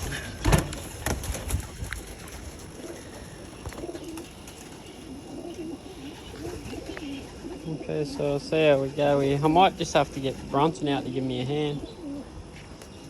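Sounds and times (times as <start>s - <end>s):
pigeons cooing: 0.0s - 13.0s
sharp knocks and clatter: 0.4s - 1.6s.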